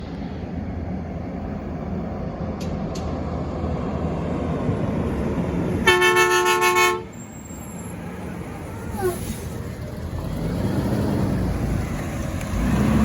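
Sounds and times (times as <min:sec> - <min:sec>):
truck horn blasting: 0:05.8 - 0:07.2.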